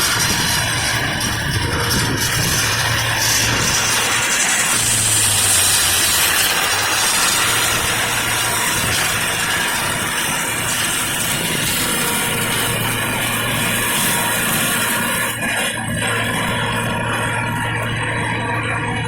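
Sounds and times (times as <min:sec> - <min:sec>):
machinery engine running: 0:00.0 - 0:19.0
broad even hiss: 0:03.2 - 0:09.6.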